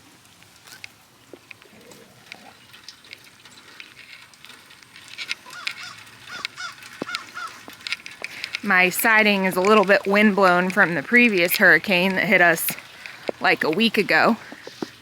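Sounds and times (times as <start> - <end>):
rustling: 0.0 - 15.0
small clicks: 0.6 - 15.0
bird calls: 5.4 - 7.7.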